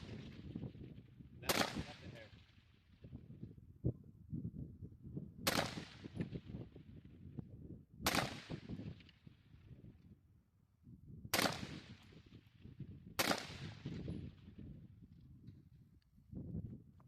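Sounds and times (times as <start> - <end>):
gunshots with echo: 1.4 - 2.4, 8.1 - 8.8, 11.3 - 12.0, 13.2 - 14.1.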